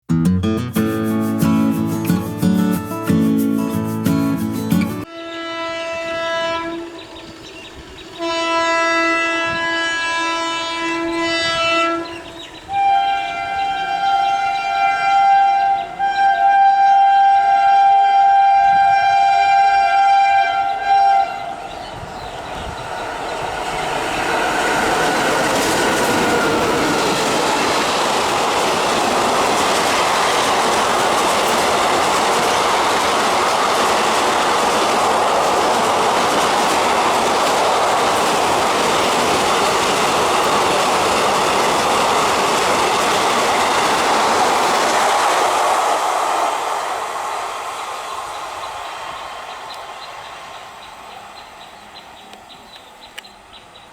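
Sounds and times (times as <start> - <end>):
train passing with clickety-clack: 0.8 - 53.9
locomotive horn: 5.0 - 21.9.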